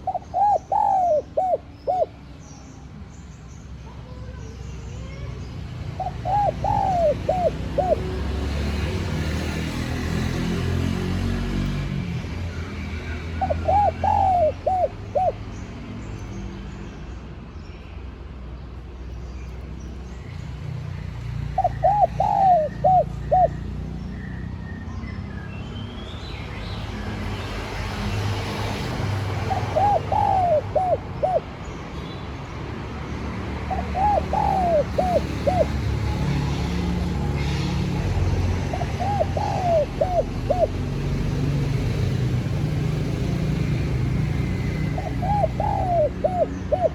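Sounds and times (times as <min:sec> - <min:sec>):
dove cooing: 0:00.0 - 0:02.2, 0:06.0 - 0:08.2, 0:13.4 - 0:15.4, 0:21.5 - 0:23.7, 0:29.2 - 0:31.6, 0:33.6 - 0:37.0, 0:38.6 - 0:41.0, 0:44.4 - 0:46.9.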